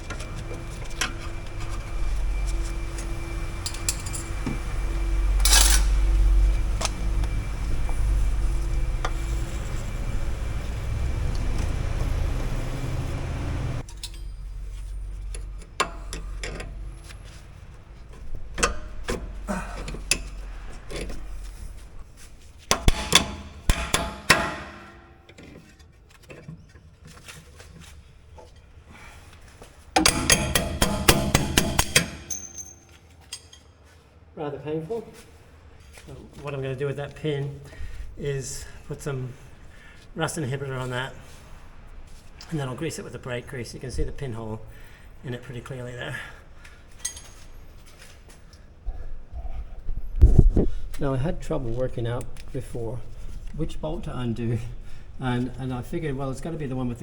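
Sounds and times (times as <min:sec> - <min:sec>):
steady low rumble: 0:00.0 - 0:25.4
sharp metal strikes: 0:22.7 - 0:25.3, 0:30.0 - 0:32.9
steel tools clinking on metal: 0:30.0 - 0:33.6.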